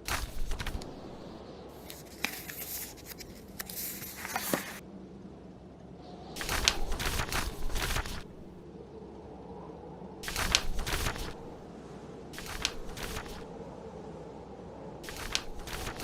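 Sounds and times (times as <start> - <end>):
book pages turning: 0.0 - 4.8, 6.4 - 8.5, 10.2 - 11.6, 12.4 - 13.5, 15.0 - 16.0
blizzard wind: 0.0 - 16.0.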